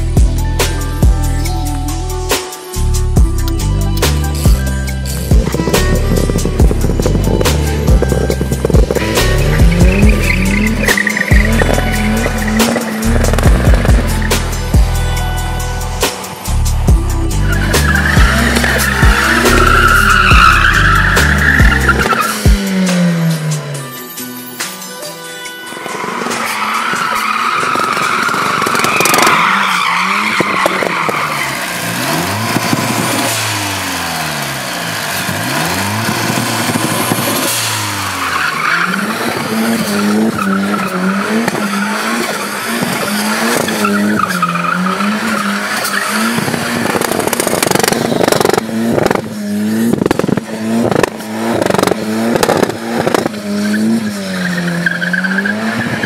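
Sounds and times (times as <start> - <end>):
car engine revving: 2.8 - 24.0, 25.7 - 56.0
exhaust bangs: 4.0 - 23.6, 26.0 - 56.0
tyres squealing: 4.4 - 16.2, 17.3 - 22.6, 25.7 - 33.3, 37.3 - 48.7.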